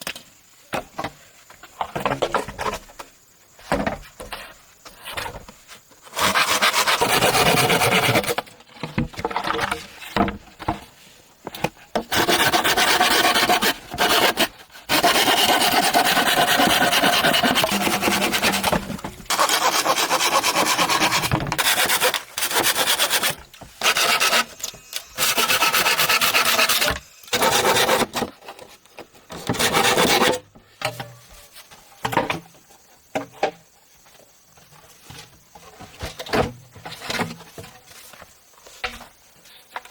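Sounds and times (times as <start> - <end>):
rasping and scraping on wood: 6.0 - 8.4, 12.1 - 28.6, 29.4 - 30.4.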